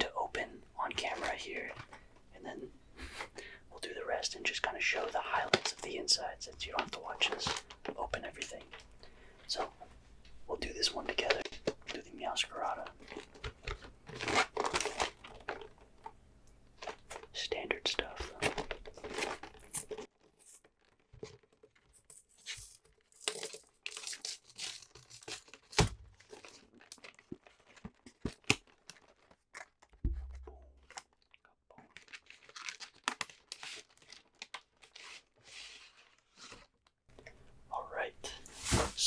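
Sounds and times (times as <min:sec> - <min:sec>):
plastic wrap tearing and crinkling: 0:13.0 - 0:15.8, 0:18.4 - 0:21.7, 0:22.4 - 0:29.9, 0:31.9 - 0:36.8
dull thump: 0:30.0 - 0:30.6.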